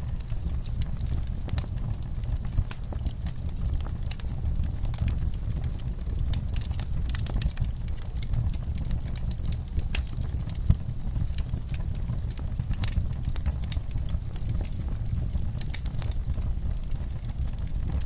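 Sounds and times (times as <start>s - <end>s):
fireplace fire crackling: 0.0s - 18.0s.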